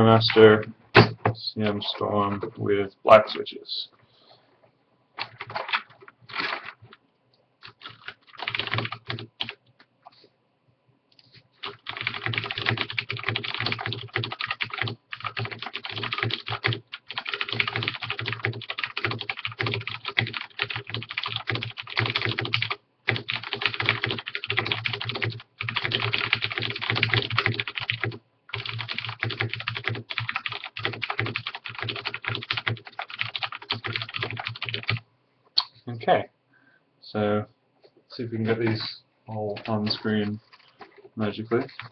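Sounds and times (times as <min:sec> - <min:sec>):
mechanical keyboard typing: 0:05.2 - 0:06.7, 0:07.6 - 0:09.6, 0:11.6 - 0:35.0, 0:41.7 - 0:41.9.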